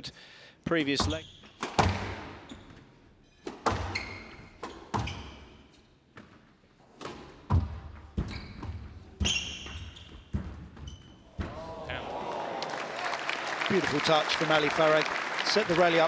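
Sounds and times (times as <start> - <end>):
squash ball hits: 1.0 - 2.4, 3.5 - 4.0
shoes squeaking on court: 1.0 - 11.4.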